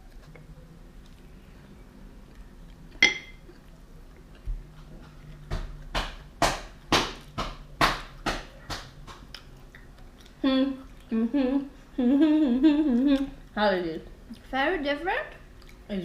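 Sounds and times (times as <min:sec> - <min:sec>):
tableware clink: 0:03.0 - 0:03.4.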